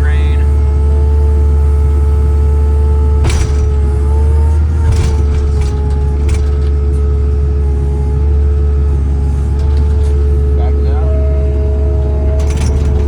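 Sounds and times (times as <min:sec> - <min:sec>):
diesel engine running under load: 0:00.0 - 0:13.0
engine whine: 0:00.0 - 0:13.0
sharp knocks from loader bucket: 0:03.2 - 0:04.1.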